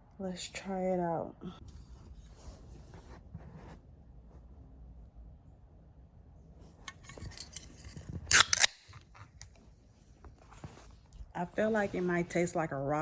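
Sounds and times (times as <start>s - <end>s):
can opening pop and fizz: 8.3s - 8.8s.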